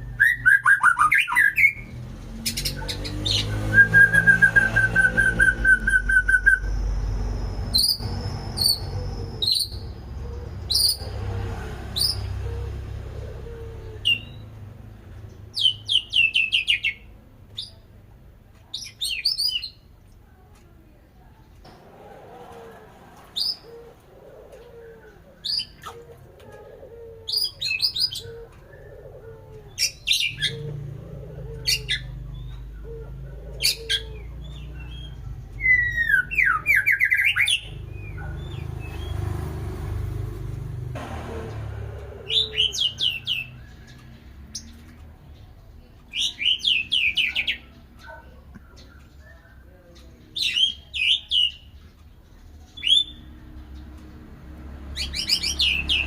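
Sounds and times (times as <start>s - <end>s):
songbird singing high phrases: 0.0s - 11.1s, 15.2s - 17.8s, 42.3s - 44.8s, 46.1s - 54.1s, 54.9s - 56.0s.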